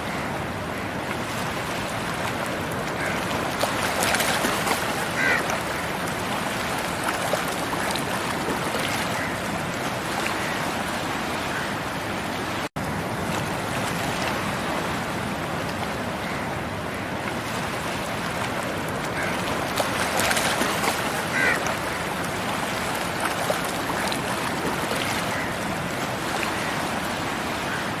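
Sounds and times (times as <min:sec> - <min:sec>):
sea waves washing onto beach: 0:00.0 - 0:28.0.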